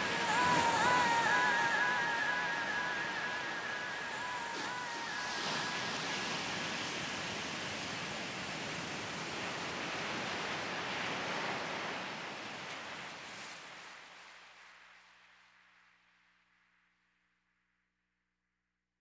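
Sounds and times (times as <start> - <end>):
waves washing: 0.0 - 14.3.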